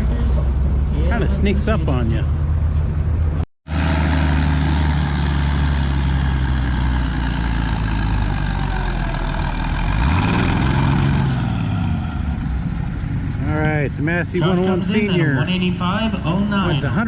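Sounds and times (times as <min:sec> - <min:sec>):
tractor engine running under load: 0:03.7 - 0:13.4.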